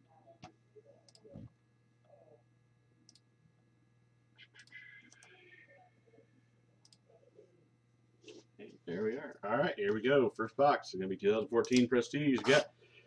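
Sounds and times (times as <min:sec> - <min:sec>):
low electrical hum: 0:00.0 - 0:13.0
computer mouse clicks: 0:01.1 - 0:01.5, 0:04.6 - 0:05.4.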